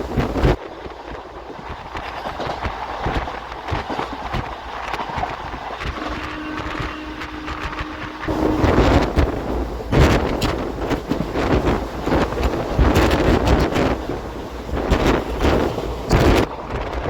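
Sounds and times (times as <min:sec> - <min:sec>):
train running rumble: 0:00.0 - 0:17.0
wind noise on microphone: 0:00.0 - 0:17.0
wheels clicking and clattering: 0:07.6 - 0:17.0.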